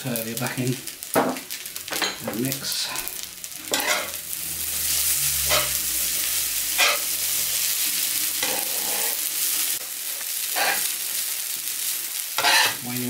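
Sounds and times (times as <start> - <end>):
food sizzling on a griddle: 0.0 - 13.0
spatulas scraping a griddle: 2.8 - 4.2, 5.2 - 5.8, 6.7 - 7.8, 8.4 - 9.8, 10.4 - 11.0, 12.4 - 12.8.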